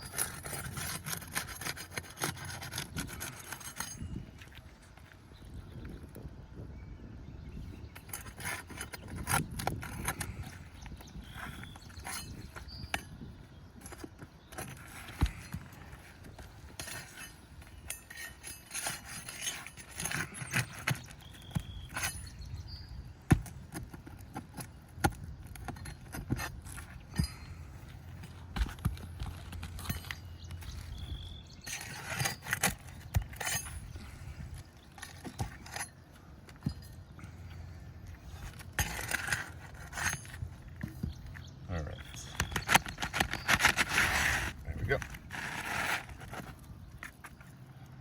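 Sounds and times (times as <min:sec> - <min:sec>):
metal tool scraping: 0:00.0 - 0:04.6, 0:07.8 - 0:47.4
metal tool clinking and tapping: 0:28.2 - 0:30.9, 0:34.8 - 0:37.3.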